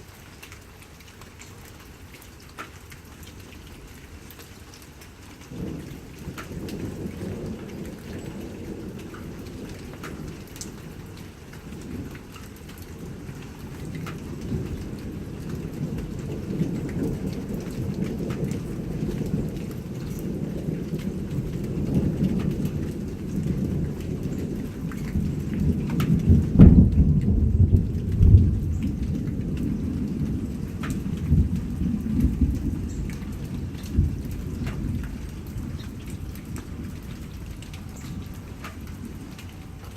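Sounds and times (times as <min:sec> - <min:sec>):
rain pattering: 0:00.0 - 0:39.9
thunder rumbling: 0:05.5 - 0:39.9
sharp thunder cracks: 0:25.2 - 0:32.9.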